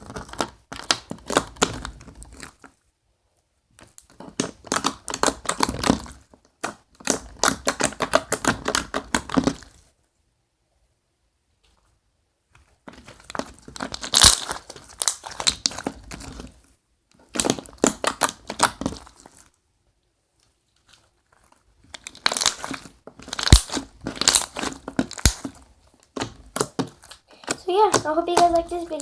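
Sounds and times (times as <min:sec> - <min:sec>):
slime crackling and clicking: 0:13.3 - 0:15.9, 0:22.0 - 0:29.0.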